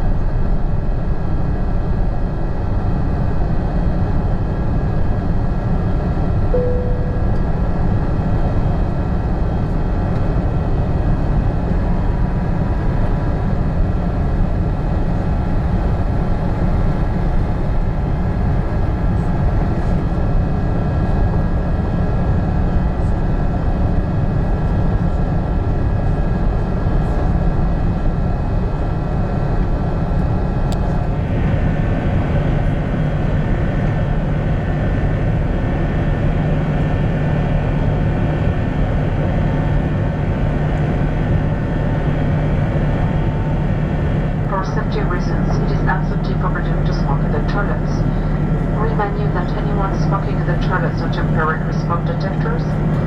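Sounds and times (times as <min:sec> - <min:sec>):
airliner engines and airflow rumble: 0:00.0 - 0:53.0
short tone: 0:06.6 - 0:08.0.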